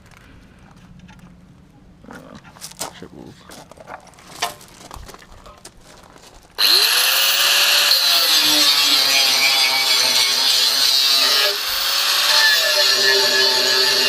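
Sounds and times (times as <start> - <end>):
power tool whining on steel: 6.6 - 14.0.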